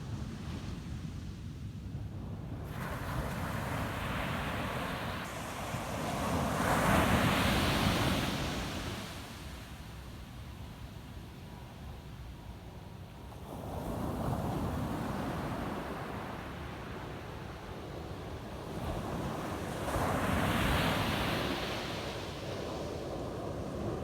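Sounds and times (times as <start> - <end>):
ocean waves crashing on beach: 2.7 - 9.5.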